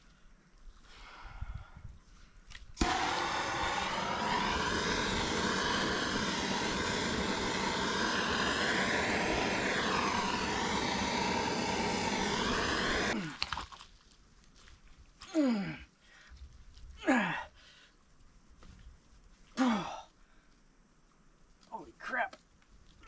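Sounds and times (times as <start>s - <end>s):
power saw cutting pipe: 2.8s - 13.2s.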